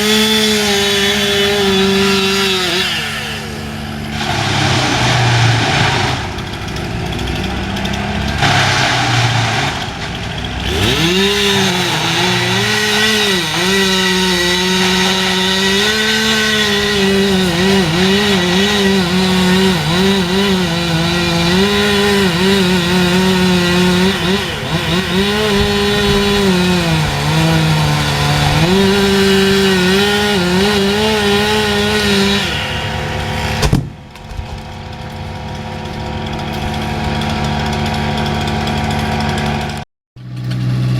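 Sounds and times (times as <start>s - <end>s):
chainsaw cutting wood: 0.0s - 40.9s
sharp thump: 33.5s - 34.6s.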